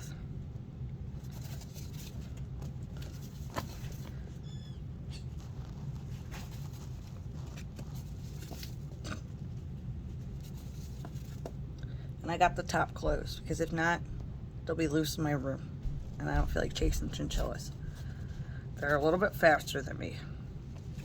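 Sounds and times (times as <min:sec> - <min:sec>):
steady low hum: 0:00.0 - 0:21.0
chinchilla squeak: 0:04.4 - 0:05.5
light taps and scratches: 0:05.1 - 0:11.6.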